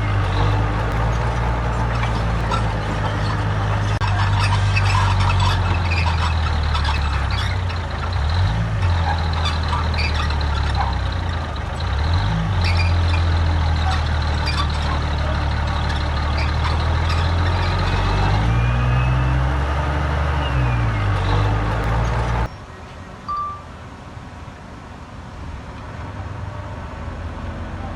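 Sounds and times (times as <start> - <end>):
metallic rattling and clanking: 0.0 - 18.0
diesel machine engine under load: 0.0 - 27.9.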